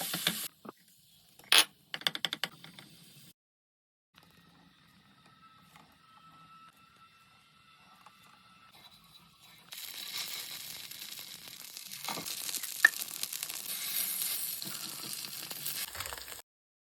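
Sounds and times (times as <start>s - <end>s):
snacks sizzling in hot oil: 0.0s - 0.5s, 9.7s - 16.4s.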